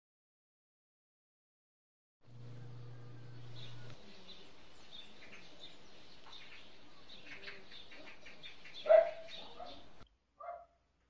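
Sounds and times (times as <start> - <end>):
low steady hum: 2.3 - 4.7
small birds chirping: 2.3 - 10.1
dog barking: 8.8 - 10.8.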